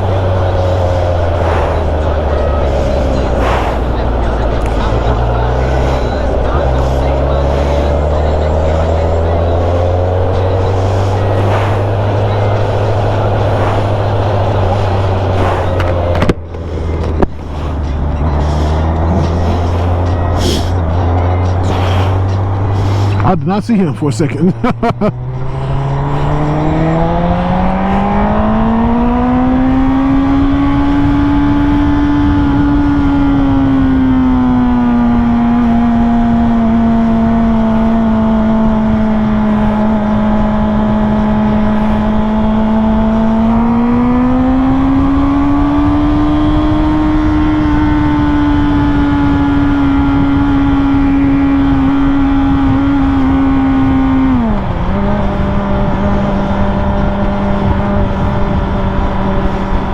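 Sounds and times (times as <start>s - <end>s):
wind rush: 0.0s - 21.0s, 25.4s - 35.8s
motorcycle engine: 0.0s - 59.9s.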